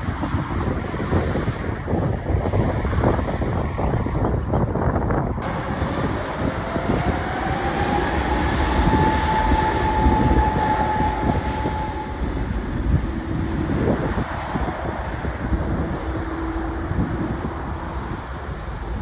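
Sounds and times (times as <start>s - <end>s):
aircraft engine roar: 0.0s - 19.0s
rising engine whine: 0.0s - 19.0s.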